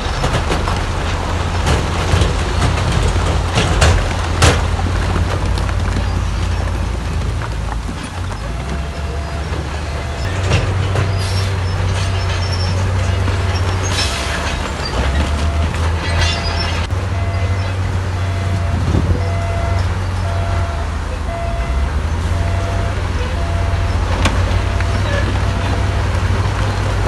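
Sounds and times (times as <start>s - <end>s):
metal and stone knocks and rattles: 0.0s - 17.0s
heavy diesel machinery running: 0.0s - 27.0s
reversing alarm beeping: 8.4s - 10.3s, 14.1s - 26.1s.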